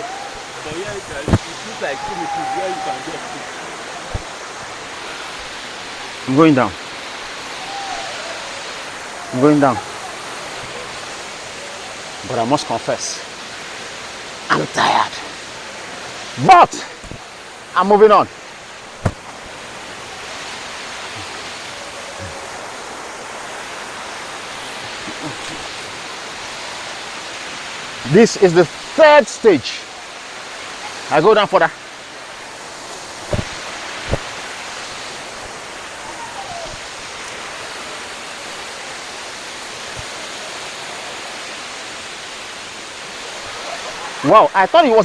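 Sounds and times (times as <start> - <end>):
waterfall rushing and splashing: 0.0 - 45.0
faint low thuds: 19.0 - 19.5, 33.2 - 34.3.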